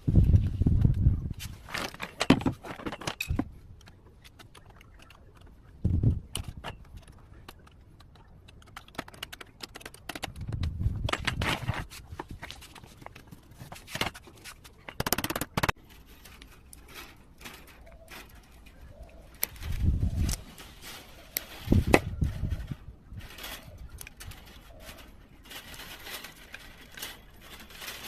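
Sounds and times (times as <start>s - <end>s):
pliers clicking and scraping wire: 6.2s - 11.4s, 12.5s - 22.4s, 23.3s - 28.0s.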